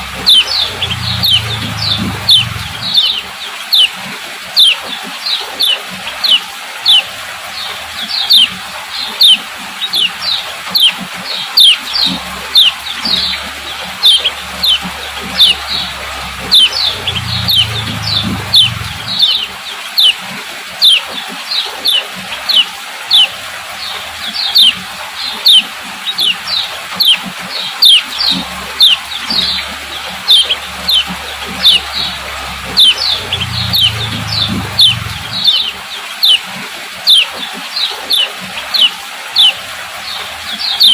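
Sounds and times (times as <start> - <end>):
faint low hum: 0.0 - 3.2, 12.0 - 19.6, 28.2 - 35.8
bird chirping: 0.0 - 4.0, 4.6 - 7.1, 8.0 - 20.2, 20.8 - 39.6, 40.6 - 40.9.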